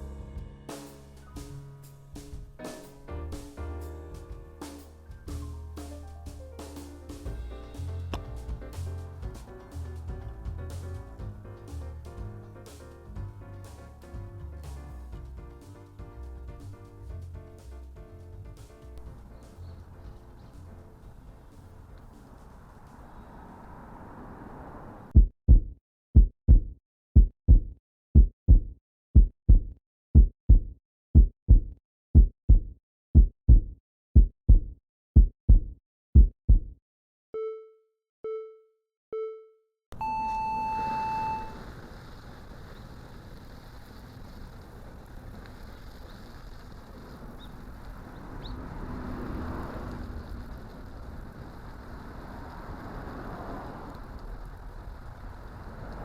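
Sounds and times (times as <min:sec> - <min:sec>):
outdoor background noise: 0:04.2 - 0:25.1, 0:40.0 - 0:56.0
heartbeat thumps: 0:07.3 - 0:13.6, 0:25.2 - 0:36.8
countdown beeps: 0:37.4 - 0:41.6.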